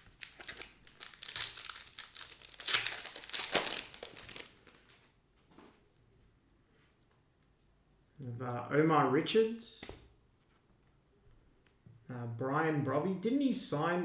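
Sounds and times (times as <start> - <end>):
foil wrapper crinkling and tearing: 0.0 - 5.1.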